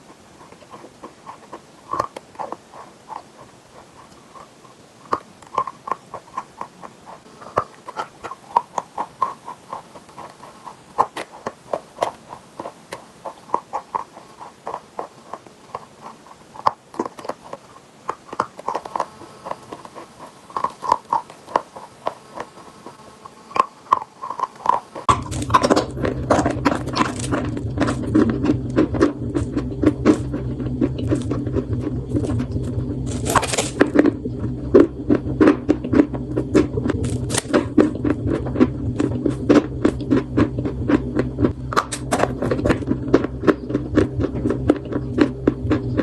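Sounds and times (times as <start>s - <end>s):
chalk crunching: 0.0s - 46.0s
fuller bassy sound: 25.1s - 46.0s.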